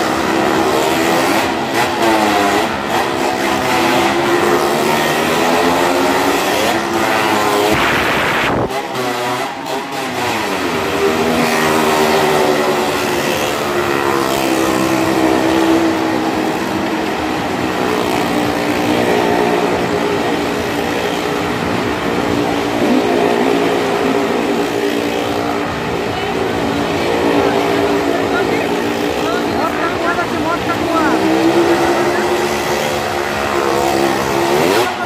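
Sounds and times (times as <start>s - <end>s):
car engines at high revs: 0.0s - 35.0s.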